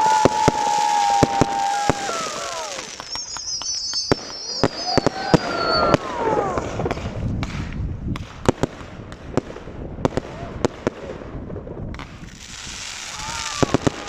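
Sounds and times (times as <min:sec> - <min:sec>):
falling firework whistle: 0:00.0 - 0:07.0
fireworks bangs: 0:00.0 - 0:14.0
fireworks crackling: 0:00.0 - 0:14.0.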